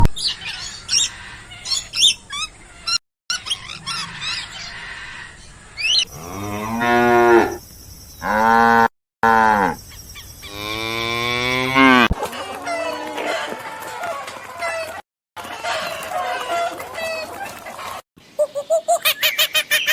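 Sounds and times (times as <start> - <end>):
cow mooing: 6.1 - 7.6, 8.2 - 9.8, 10.5 - 12.2.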